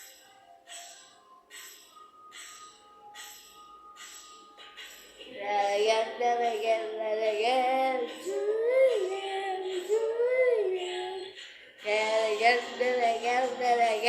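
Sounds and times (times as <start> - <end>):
child singing wordless melody: 5.3 - 14.0.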